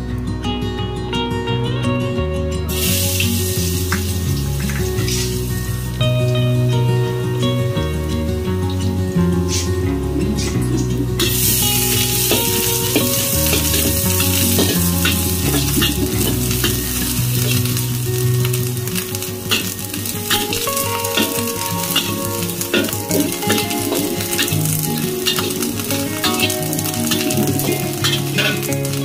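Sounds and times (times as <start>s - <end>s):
food sizzling in hot oil: 2.7s - 6.7s, 11.0s - 29.0s
metal spatula scraping wok: 9.5s - 17.6s, 19.5s - 28.6s.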